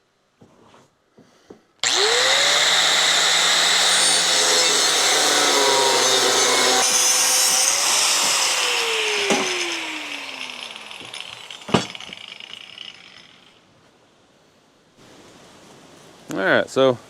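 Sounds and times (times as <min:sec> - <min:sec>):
angle grinder motor whine: 0:01.8 - 0:13.5
grinder cutting steel plate: 0:01.8 - 0:13.6.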